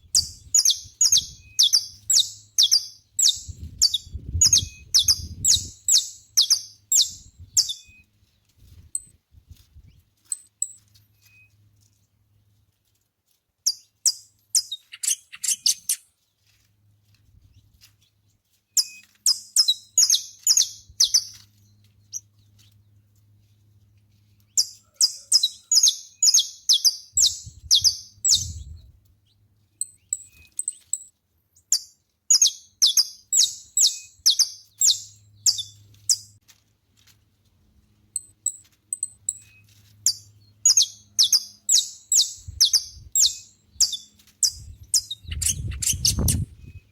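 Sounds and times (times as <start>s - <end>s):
finch singing: 0.0s - 8.0s, 13.7s - 16.0s, 18.8s - 21.4s, 24.5s - 28.9s, 31.7s - 36.3s, 38.2s - 46.9s.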